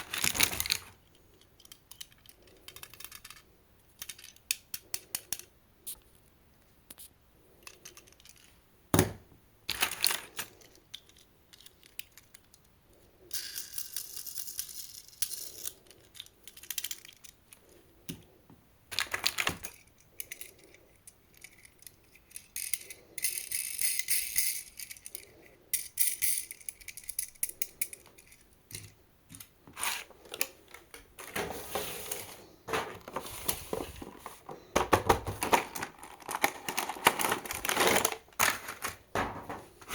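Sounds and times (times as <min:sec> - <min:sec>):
toy cars clicking and rattling: 0:00.0 - 0:05.6, 0:07.5 - 0:08.6, 0:09.7 - 0:17.7, 0:18.9 - 0:31.1
rustling or scraping: 0:29.7 - 0:39.9.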